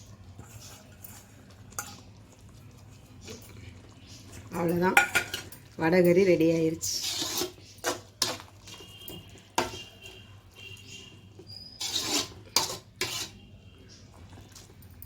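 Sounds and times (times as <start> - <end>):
utensils knocking against pot: 4.7 - 5.6.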